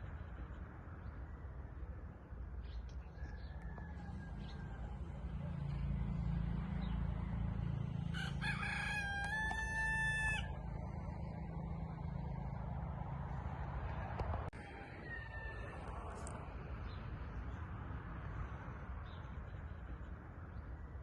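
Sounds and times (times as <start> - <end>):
rooster crowing: 3.2 - 5.2, 8.0 - 10.9, 14.5 - 16.4.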